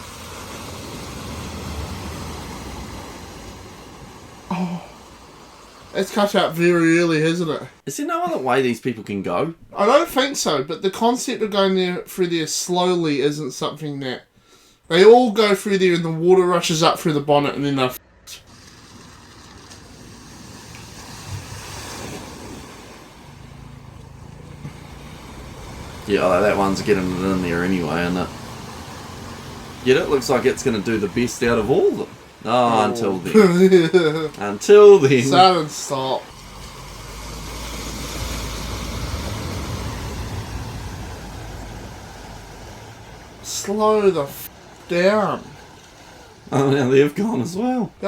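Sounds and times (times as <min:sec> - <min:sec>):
water splashing: 0:00.0 - 0:08.6, 0:16.0 - 0:48.0
car engine running: 0:22.9 - 0:44.1.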